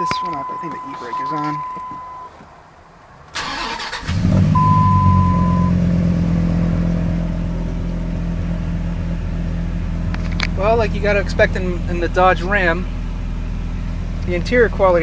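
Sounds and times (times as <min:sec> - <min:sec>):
electronic beep: 0:00.0 - 0:02.3, 0:04.6 - 0:05.8
car engine starting and idling: 0:00.0 - 0:15.0
engine starter cranking: 0:03.3 - 0:05.7.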